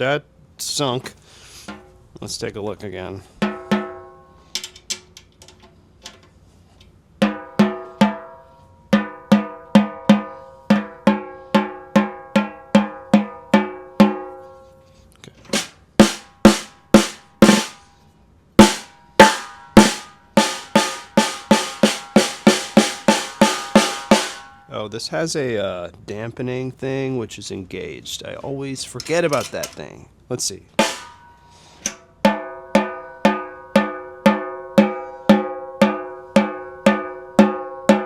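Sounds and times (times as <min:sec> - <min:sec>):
snare drum hits: 0:15.5 - 0:17.8, 0:18.6 - 0:24.5, 0:30.8 - 0:31.2.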